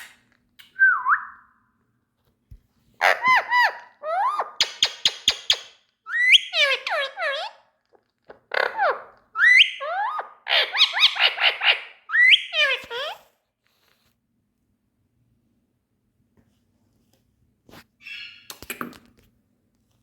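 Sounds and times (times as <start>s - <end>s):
parrot calling: 3.0s - 7.7s, 8.5s - 13.2s, 18.0s - 18.5s.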